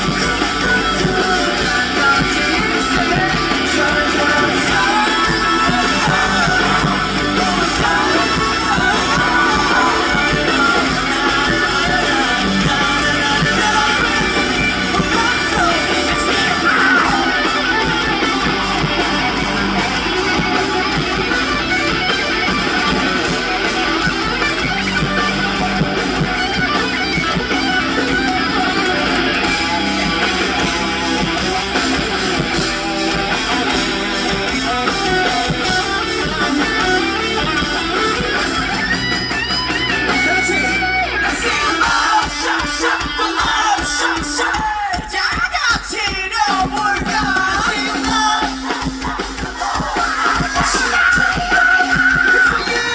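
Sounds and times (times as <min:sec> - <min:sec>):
live rock band with guitars: 0:00.0 - 0:52.9.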